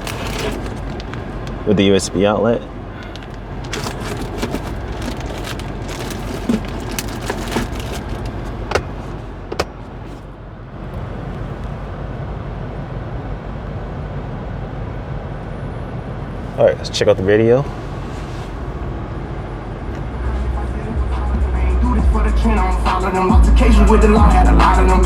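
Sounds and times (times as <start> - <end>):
car engine idling hum: 0.0 - 25.0.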